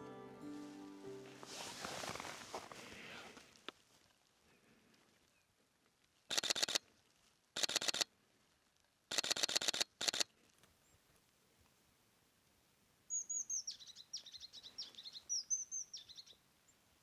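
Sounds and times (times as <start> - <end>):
camera shutter clicking in bursts: 6.3 - 6.8, 7.6 - 8.1, 9.1 - 10.3.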